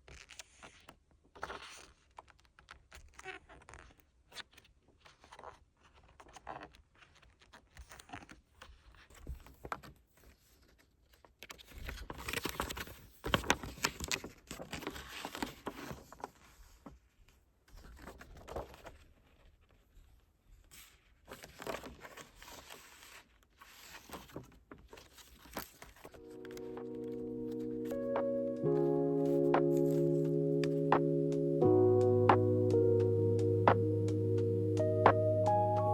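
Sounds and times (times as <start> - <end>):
paper and plastic crinkling: 5.2 - 16.8, 20.8 - 30.2.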